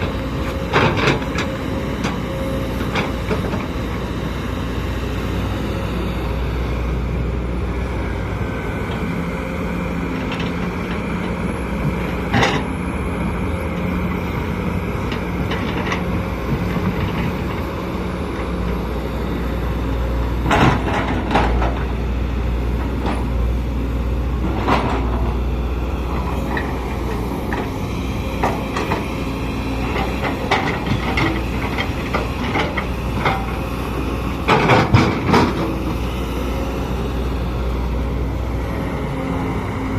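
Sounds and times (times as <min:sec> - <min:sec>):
excavator diesel engine running: 0:00.0 - 0:39.9
metallic clanks and knocks: 0:34.4 - 0:35.7.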